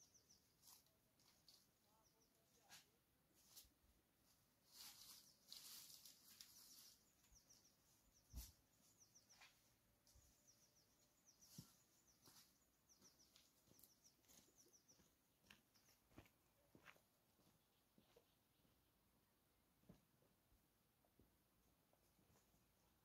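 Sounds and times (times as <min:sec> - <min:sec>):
small birds chirping: 0:00.0 - 0:03.6, 0:04.7 - 0:19.1.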